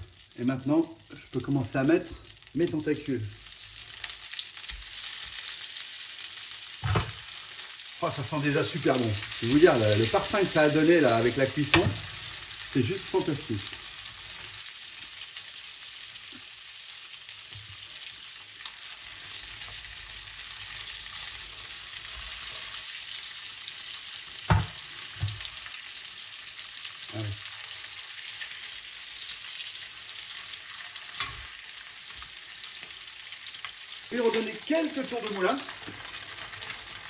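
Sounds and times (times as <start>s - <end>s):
octopus sizzling in butter: 0.0s - 37.0s
fork knocking in pan: 11.7s - 12.0s.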